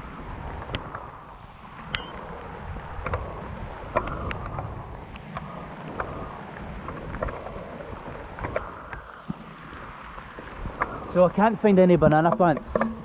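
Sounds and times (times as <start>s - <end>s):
wind rumble on microphone: 0.0s - 13.0s
sharp clicks and snaps: 3.9s - 5.4s.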